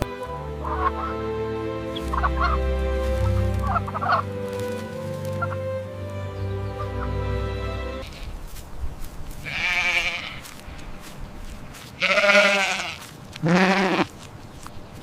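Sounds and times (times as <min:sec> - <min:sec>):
goat bleating: 0:09.4 - 0:10.5, 0:12.0 - 0:14.2.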